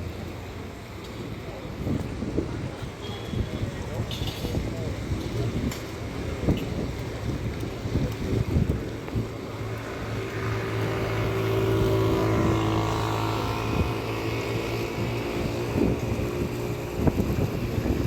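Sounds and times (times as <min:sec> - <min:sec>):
street noise: 0:00.0 - 0:18.0
wind: 0:00.0 - 0:18.0
vehicle engine passing by: 0:09.8 - 0:16.5.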